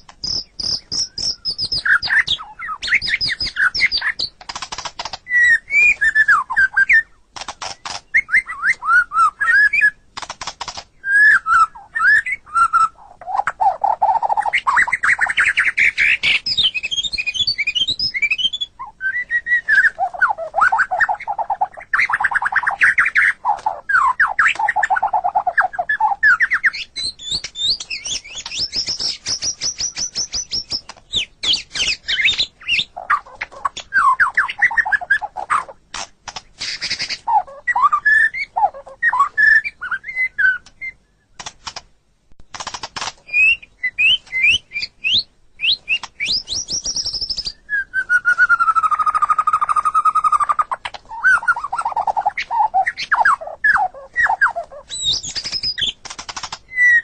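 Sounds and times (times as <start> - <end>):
long steady bird whistle: 0.0 - 4.3, 5.3 - 7.2, 8.1 - 10.0, 11.0 - 13.0, 13.9 - 21.4, 23.9 - 32.9, 36.6 - 41.4, 43.3 - 56.0
songbird singing trills and whistles: 0.0 - 35.8, 36.4 - 41.5, 43.2 - 57.0.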